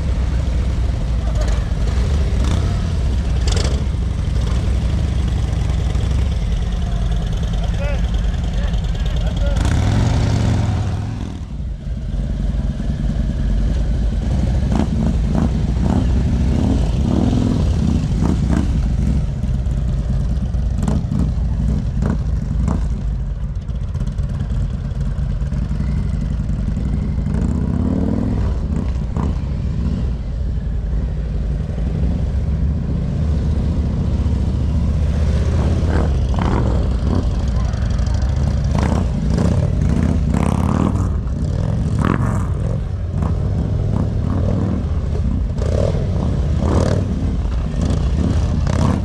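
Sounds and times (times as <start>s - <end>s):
motorcycle engine rumbling: 0.0s - 49.0s.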